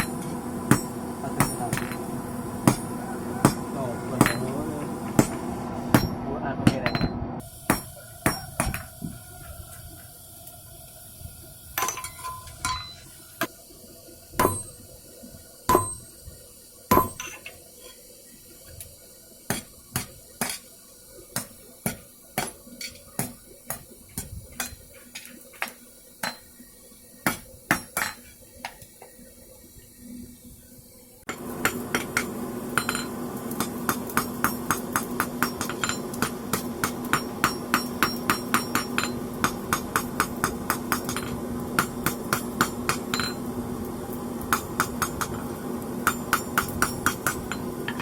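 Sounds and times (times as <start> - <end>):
hammer striking metal on anvil: 0.0 - 8.8, 14.4 - 14.8, 15.7 - 16.1, 16.9 - 17.4, 31.3 - 43.4, 44.5 - 45.4, 46.0 - 48.0.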